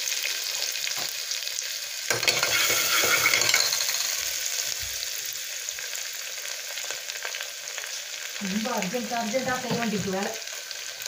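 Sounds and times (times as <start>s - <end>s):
onions sizzling in hot oil: 0.0s - 11.0s
metal ladle scraping a pot: 2.1s - 3.8s.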